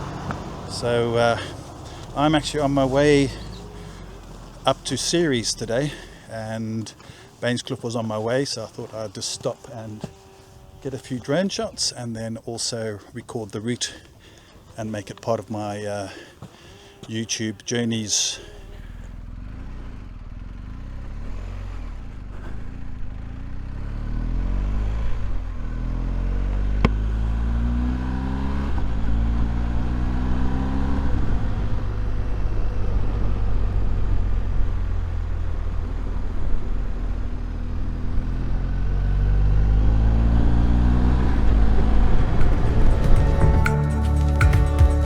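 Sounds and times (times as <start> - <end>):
motorcycle engine accelerating: 0.0 - 12.9, 14.8 - 45.0.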